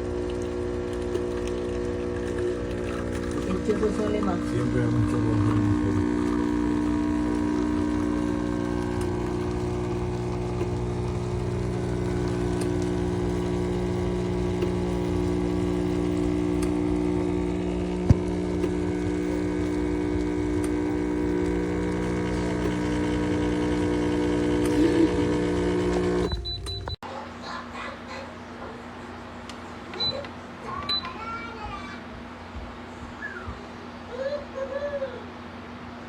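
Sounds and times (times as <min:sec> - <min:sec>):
espresso machine pump humming: 0:00.0 - 0:27.0.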